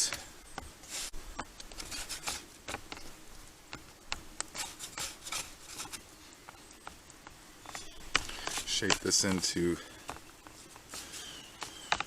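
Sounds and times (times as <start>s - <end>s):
hands rubbing dough: 7.8s - 12.0s.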